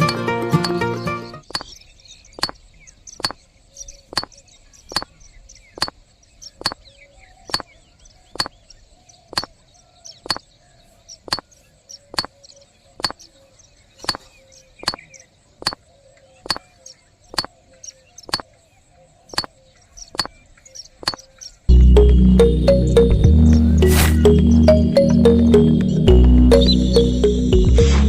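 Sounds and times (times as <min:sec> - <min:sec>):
faint high chirping: 0:00.0 - 0:18.6, 0:19.3 - 0:27.8
sharp even clicks: 0:01.5 - 0:01.7, 0:04.1 - 0:04.3, 0:05.8 - 0:06.0, 0:08.4 - 0:08.6, 0:12.1 - 0:12.4, 0:13.0 - 0:13.2, 0:16.4 - 0:16.6, 0:20.1 - 0:20.3.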